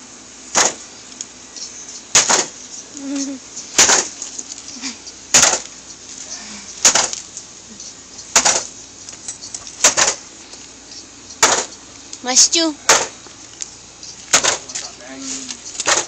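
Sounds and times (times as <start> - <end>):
sharp knocks on hard surface: 11.4 - 11.7.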